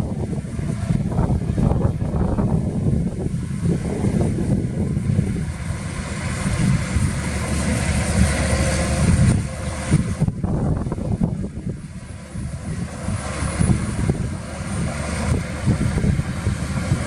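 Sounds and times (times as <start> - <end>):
diesel machinery engine rumble: 0.0 - 17.0
rushing grinding noise: 0.0 - 17.0.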